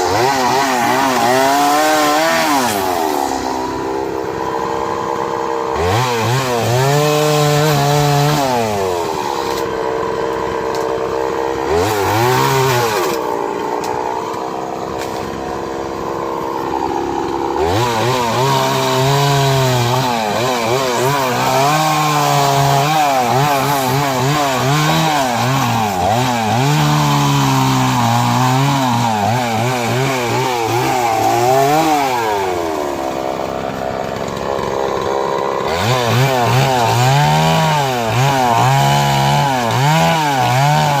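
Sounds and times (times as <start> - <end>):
chainsaw cutting through trunk: 0.0 - 41.0.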